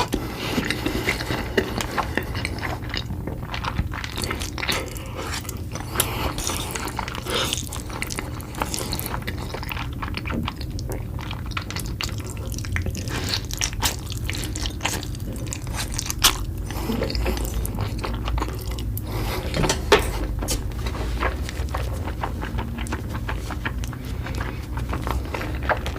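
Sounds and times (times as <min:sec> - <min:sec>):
person chewing noodles: 0:00.0 - 0:25.9
low hum: 0:07.9 - 0:25.9.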